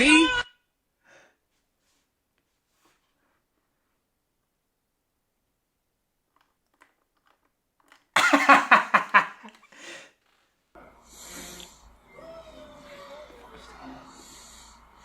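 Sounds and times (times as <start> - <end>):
person laughing: 8.2 - 9.7.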